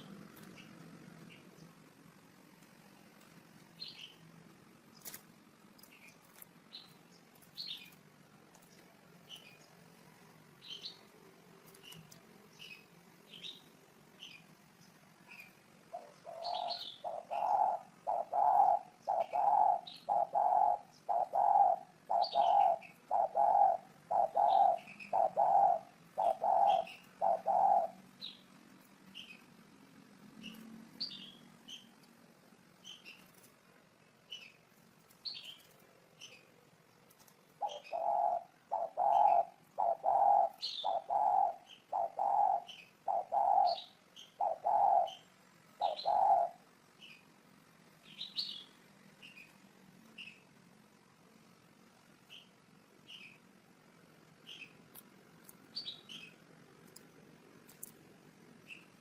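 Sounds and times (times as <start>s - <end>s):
small birds chirping: 0.0s - 59.0s
dove cooing: 15.9s - 28.4s, 37.5s - 46.7s.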